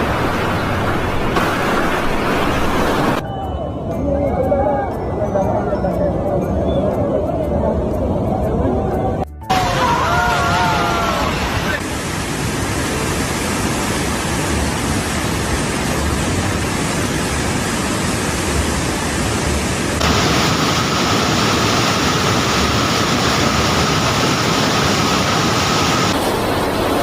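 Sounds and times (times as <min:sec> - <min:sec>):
rushing floodwater: 0:00.0 - 0:03.2, 0:09.5 - 0:27.0
thin steady high tone: 0:03.2 - 0:10.0.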